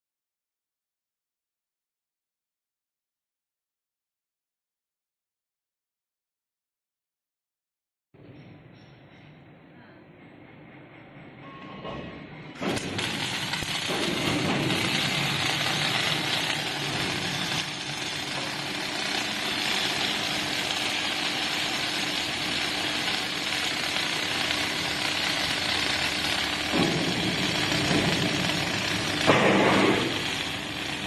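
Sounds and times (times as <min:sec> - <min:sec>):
low machinery hum: 0:12.2 - 0:31.0
factory machinery hiss: 0:12.6 - 0:31.0.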